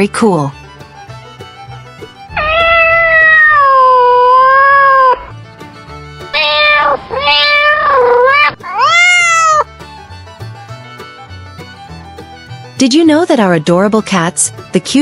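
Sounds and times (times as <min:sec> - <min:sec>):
cat meowing: 0:02.3 - 0:05.3, 0:06.4 - 0:09.7.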